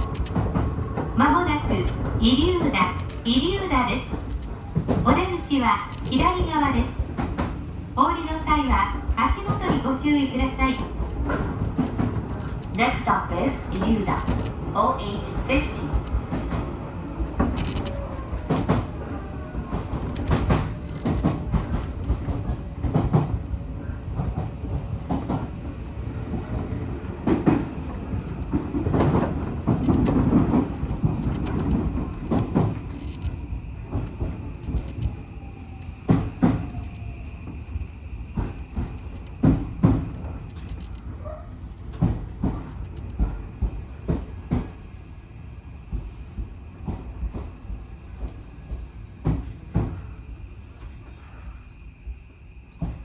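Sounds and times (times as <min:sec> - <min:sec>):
train wheels clattering over rail joints: 0:00.0 - 0:07.6, 0:13.7 - 0:18.9, 0:19.7 - 0:23.4, 0:24.2 - 0:35.5
train low rumble: 0:00.0 - 0:53.0.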